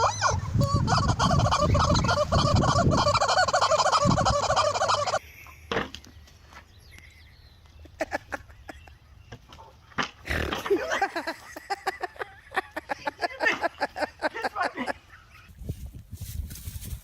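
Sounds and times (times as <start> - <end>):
fowl warbling chorus: 0.0 - 5.2.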